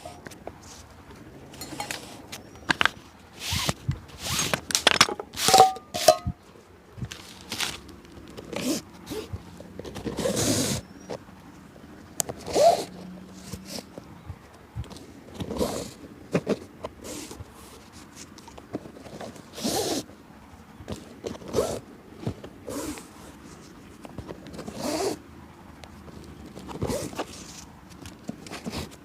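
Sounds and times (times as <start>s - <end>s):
scrapes and rustles on shoe: 0.0s - 1.0s, 7.0s - 11.6s, 12.3s - 20.1s, 20.8s - 25.3s, 25.9s - 29.0s
brushing strokes: 5.4s - 6.3s.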